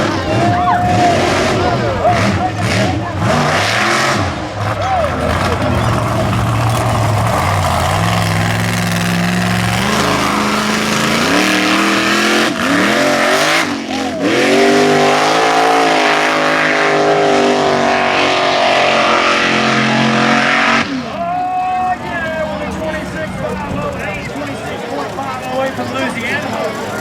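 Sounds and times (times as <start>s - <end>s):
truck engine at high revs: 0.0s - 21.3s, 21.9s - 27.0s.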